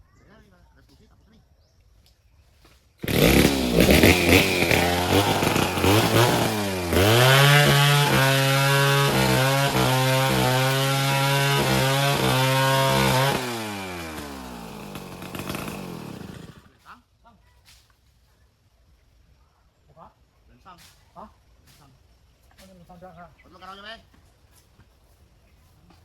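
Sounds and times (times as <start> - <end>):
chainsaw revving: 3.0 - 16.8.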